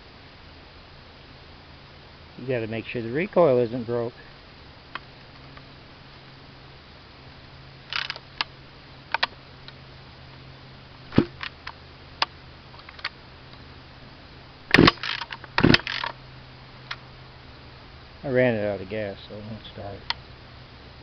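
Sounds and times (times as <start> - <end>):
recoil starter rope pulls: 7.9 - 8.2, 14.7 - 16.2
chainsaw handling clicks and knocks: 7.9 - 8.5, 9.1 - 9.8, 11.1 - 13.6, 14.7 - 16.2.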